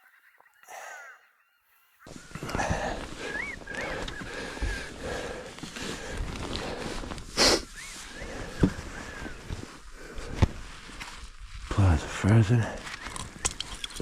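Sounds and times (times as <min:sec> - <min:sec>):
birds whistling: 0:00.0 - 0:05.2, 0:07.4 - 0:09.5.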